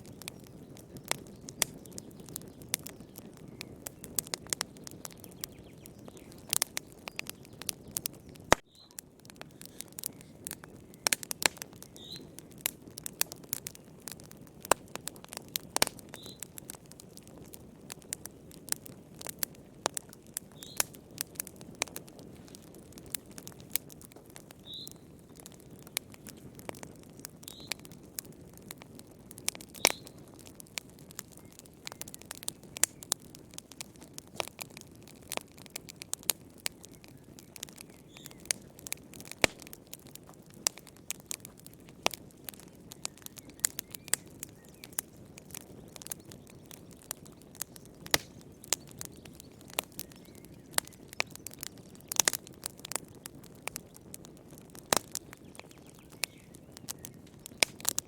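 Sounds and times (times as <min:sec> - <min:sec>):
wood fire crackling: 0:00.0 - 0:58.0
faint high chirp: 0:08.7 - 0:09.0.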